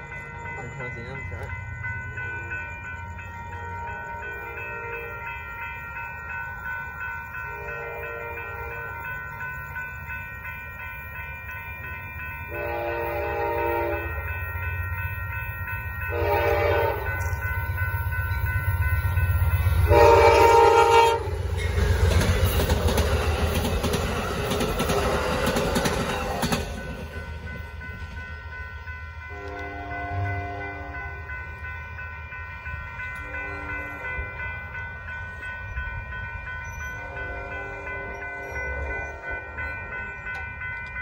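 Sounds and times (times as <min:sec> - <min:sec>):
crossing bell ringing: 0:00.0 - 0:41.0
train rushing past: 0:00.0 - 0:41.0
train horn blasts: 0:07.5 - 0:09.1, 0:12.5 - 0:14.3, 0:16.1 - 0:17.4, 0:19.8 - 0:21.7, 0:29.2 - 0:31.3, 0:36.9 - 0:39.5.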